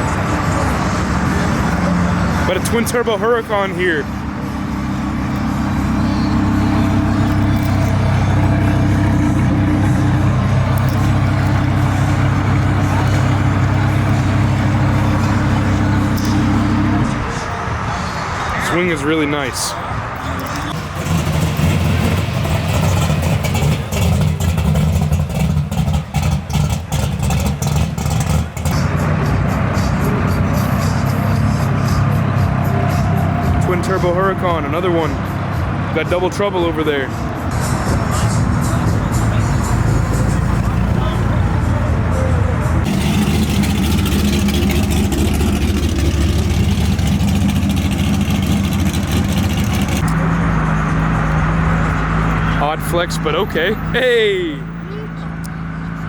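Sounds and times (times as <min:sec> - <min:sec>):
exhaust crackles: 0:00.0 - 0:17.4, 0:20.6 - 0:35.1, 0:37.7 - 0:50.3
sports car engine revving: 0:00.0 - 0:17.4, 0:20.5 - 0:36.2, 0:37.1 - 0:54.0.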